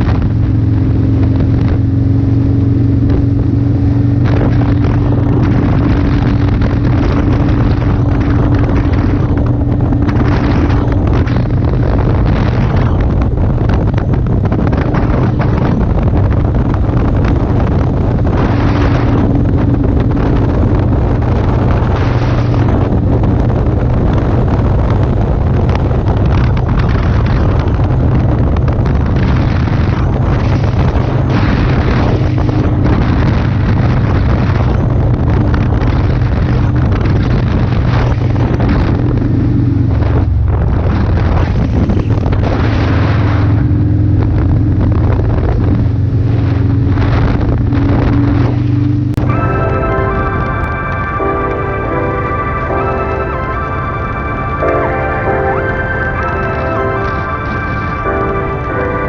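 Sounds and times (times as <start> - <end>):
motorcycle engine droning: 0.0 - 59.0
wind buffeting on microphone: 0.0 - 59.0.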